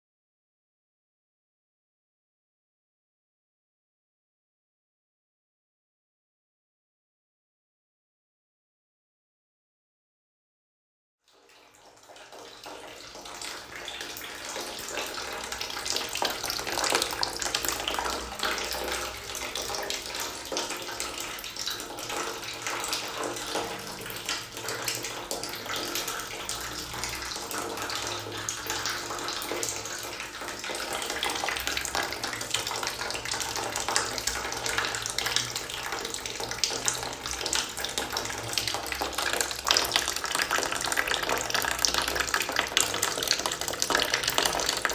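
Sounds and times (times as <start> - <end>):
water trickling into a bucket: 11.3 - 44.9.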